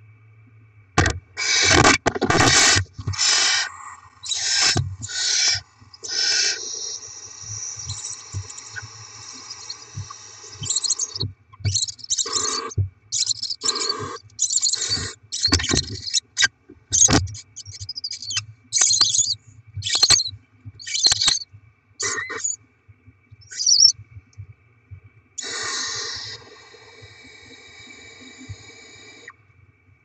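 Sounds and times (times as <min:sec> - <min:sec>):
owlets hissing begging calls: 0:02.5 - 0:16.4, 0:22.0 - 0:22.6, 0:25.4 - 0:29.3.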